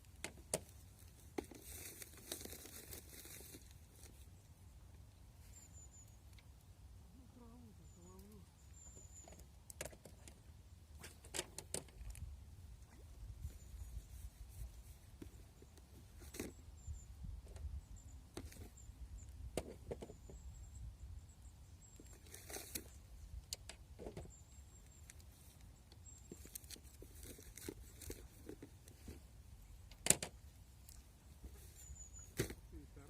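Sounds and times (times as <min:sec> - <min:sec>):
faint high chirps: 0:05.4 - 0:09.5.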